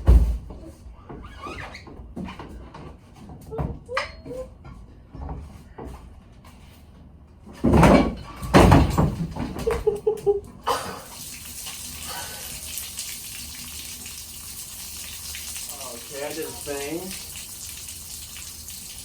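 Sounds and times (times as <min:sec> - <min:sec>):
engine block crashing and banging: 0:07.6 - 0:09.8
coolant pouring with a hiss: 0:10.7 - 0:19.0.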